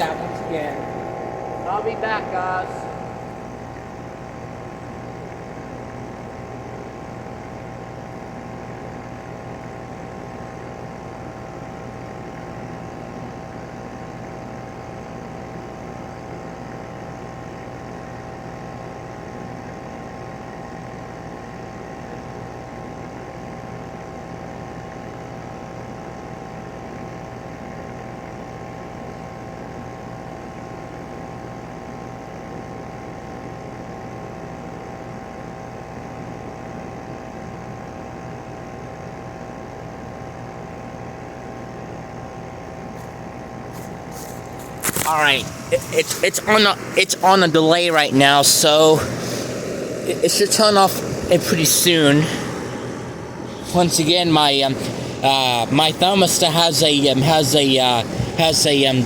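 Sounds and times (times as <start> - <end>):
heat pump unit humming: 0.0 - 59.0.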